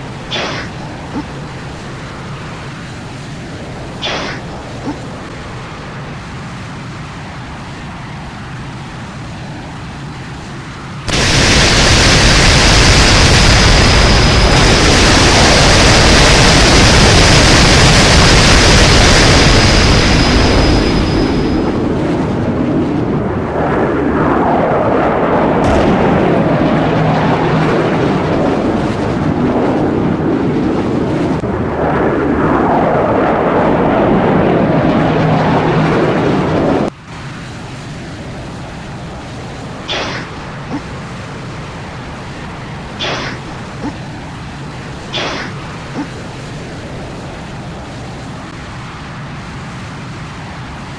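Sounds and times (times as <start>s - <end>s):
jet engine high whine: 0.0s - 50.9s
jet engine roar: 0.0s - 50.9s.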